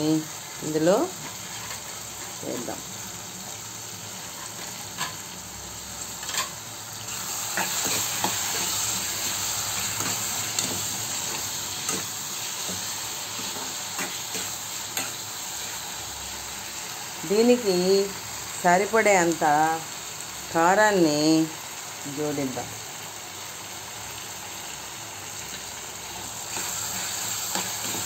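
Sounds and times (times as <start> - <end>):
food sizzling in a frying pan: 0.0 - 28.0
metal spoon scraping a pan: 1.2 - 2.8, 4.2 - 5.3, 6.1 - 15.2, 26.5 - 28.0.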